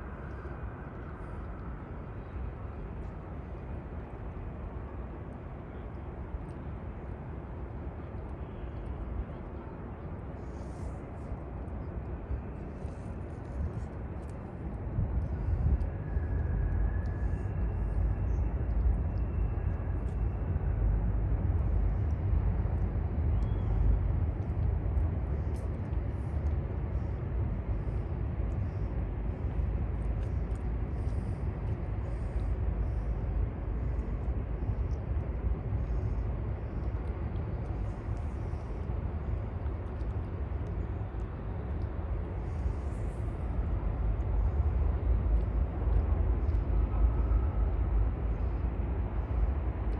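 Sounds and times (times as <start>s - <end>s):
city ambience rumble: 0.0s - 49.9s.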